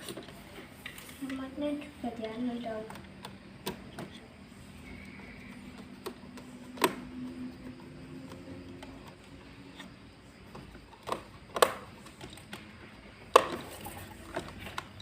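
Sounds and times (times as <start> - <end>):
plastic toy clicks and knocks: 10.5 - 12.7, 13.3 - 15.0.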